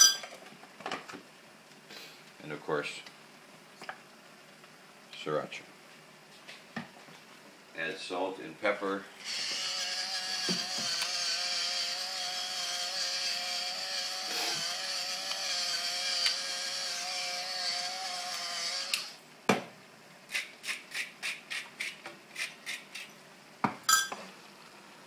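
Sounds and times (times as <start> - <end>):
electric spice grinder whining: 9.2 - 19.2.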